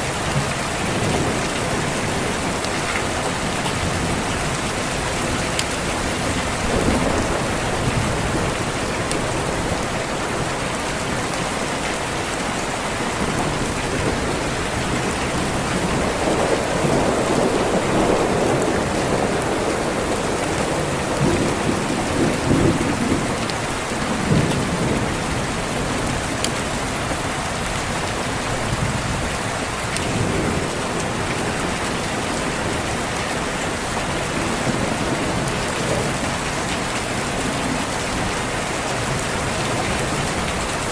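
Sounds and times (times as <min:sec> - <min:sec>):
steady rain: 0:00.0 - 0:40.9
rolling thunder: 0:00.3 - 0:11.6, 0:13.0 - 0:26.4.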